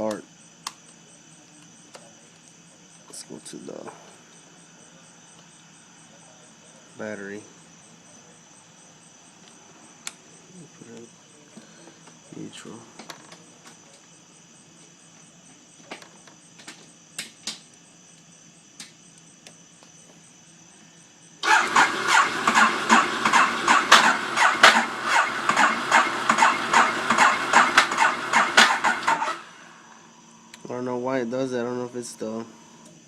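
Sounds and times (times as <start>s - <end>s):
motorcycle electric starter cranking: 21.4s - 29.7s.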